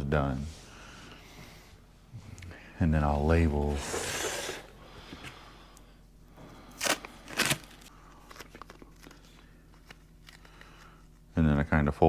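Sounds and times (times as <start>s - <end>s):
tape ripping off a roll: 6.8s - 8.8s
tape rustling: 6.8s - 11.0s.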